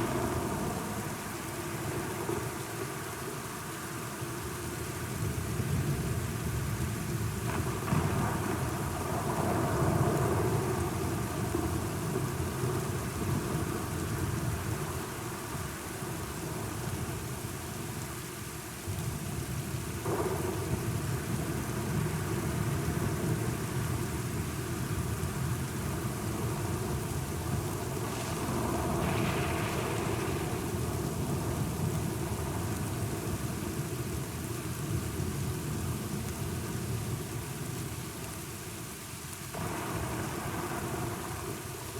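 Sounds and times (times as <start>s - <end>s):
steady rain falling: 0.0s - 41.9s
thunder rolling: 28.0s - 32.6s.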